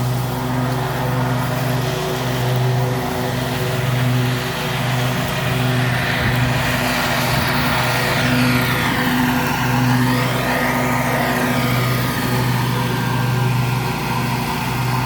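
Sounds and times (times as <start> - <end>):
mower engine running steadily: 0.0 - 15.0.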